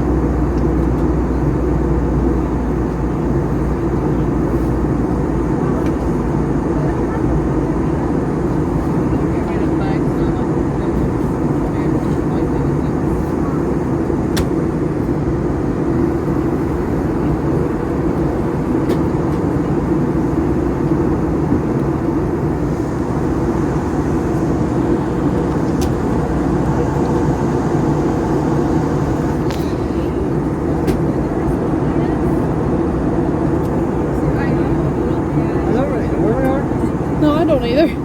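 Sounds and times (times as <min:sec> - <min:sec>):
jet engines droning: 0:00.0 - 0:38.0
rushing airflow: 0:13.3 - 0:37.8.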